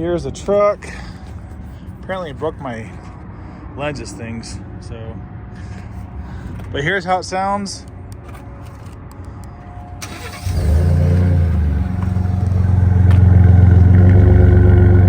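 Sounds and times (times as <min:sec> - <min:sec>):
truck engine starting and idling: 0:10.0 - 0:15.0.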